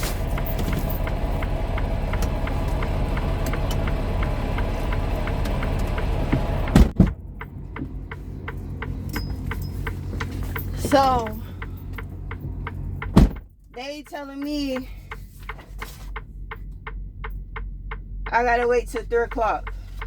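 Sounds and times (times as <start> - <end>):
regular engine ticking: 0.0 - 20.0
truck engine idling: 0.0 - 20.0
door shutting: 6.3 - 7.2, 13.1 - 13.5.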